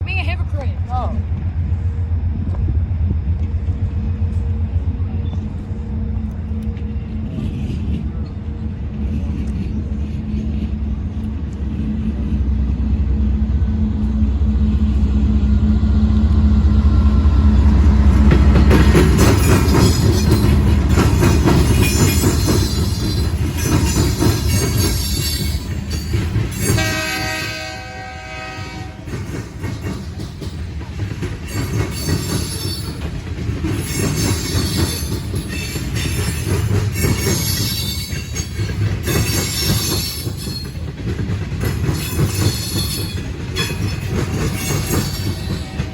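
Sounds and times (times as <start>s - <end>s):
diesel locomotive engine drone: 0.0s - 45.9s
train wheels clattering: 17.7s - 45.9s
train air horn: 26.8s - 29.1s
wheel squeals: 31.4s - 40.9s.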